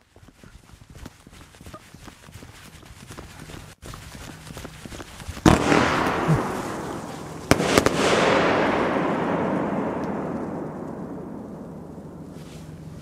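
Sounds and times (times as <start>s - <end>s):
firework bang with echo: 5.4s - 12.4s
firework cracks: 5.4s - 12.9s.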